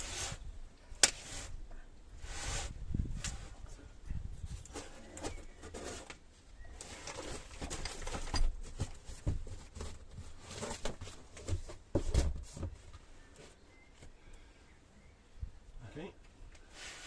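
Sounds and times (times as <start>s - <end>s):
scuffs and knocks of handled parts: 4.4s - 14.1s.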